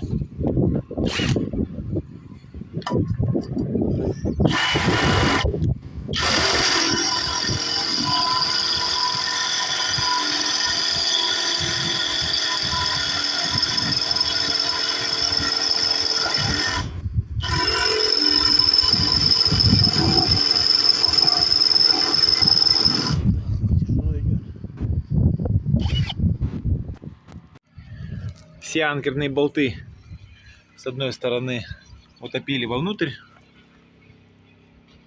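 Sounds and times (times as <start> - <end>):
electric drill whining through metal: 1.0 - 1.5, 4.0 - 23.5, 25.8 - 26.2.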